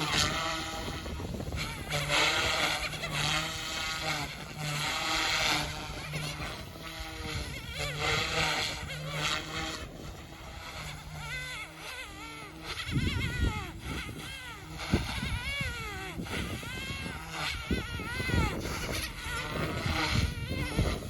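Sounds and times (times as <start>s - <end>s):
rc helicopter motor and rotor whine: 0.0s - 21.0s
wind rumble on microphone: 0.0s - 21.0s.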